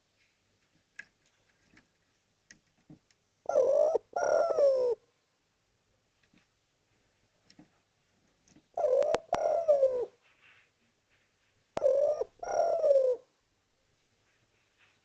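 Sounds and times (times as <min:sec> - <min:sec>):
dove cooing: 0:03.5 - 0:05.0, 0:08.7 - 0:10.2, 0:11.8 - 0:13.3.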